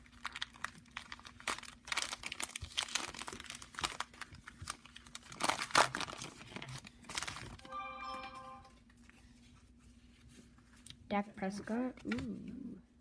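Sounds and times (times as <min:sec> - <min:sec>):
wrapper crinkling and tearing: 0:00.0 - 0:07.6.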